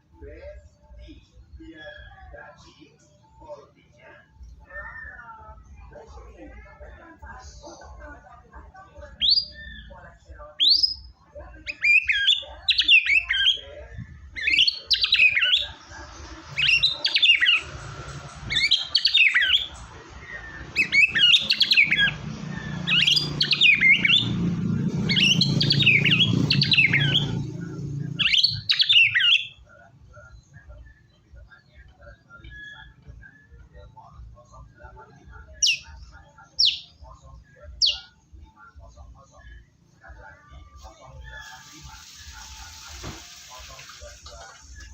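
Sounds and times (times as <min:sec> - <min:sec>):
songbird singing whistles: 0:09.2 - 0:10.0, 0:10.6 - 0:13.6, 0:14.3 - 0:15.8, 0:16.5 - 0:24.4, 0:25.0 - 0:27.4, 0:28.1 - 0:29.7, 0:30.4 - 0:34.0, 0:35.6 - 0:37.0, 0:37.8 - 0:38.3.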